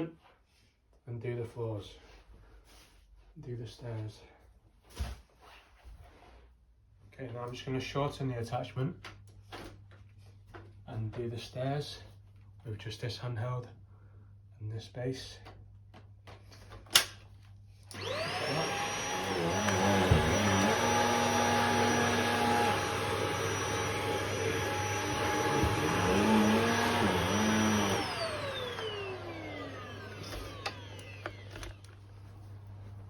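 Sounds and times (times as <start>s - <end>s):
stick vacuum whining: 17.8s - 32.3s.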